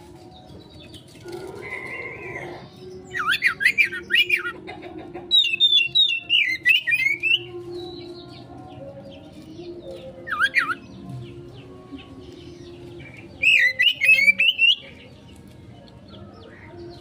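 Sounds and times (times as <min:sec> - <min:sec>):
songbird singing sharp whistles: 0:05.4 - 0:07.5, 0:10.2 - 0:10.8, 0:13.4 - 0:14.9.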